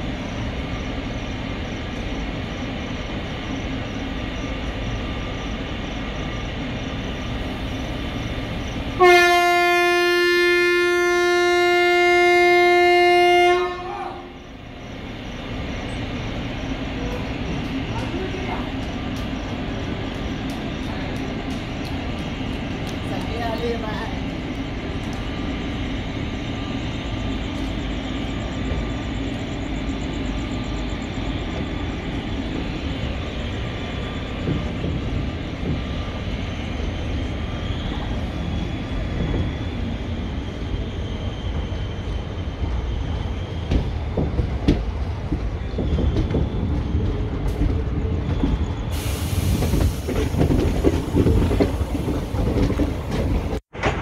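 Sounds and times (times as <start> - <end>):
wheels rumbling on rails: 0.0 - 54.0
high rushing hiss: 48.9 - 50.4.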